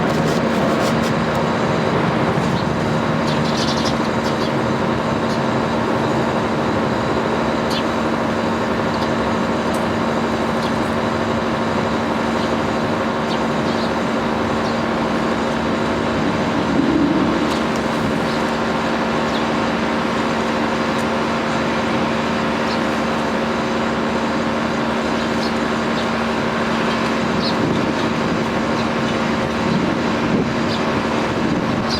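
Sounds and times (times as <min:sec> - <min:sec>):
constant low hum: 0:00.0 - 0:31.9
traffic and town noise: 0:00.0 - 0:31.9
sparrows chirping: 0:02.4 - 0:05.6, 0:07.6 - 0:08.0, 0:12.2 - 0:20.0, 0:22.4 - 0:23.2, 0:25.1 - 0:30.0, 0:30.6 - 0:31.9.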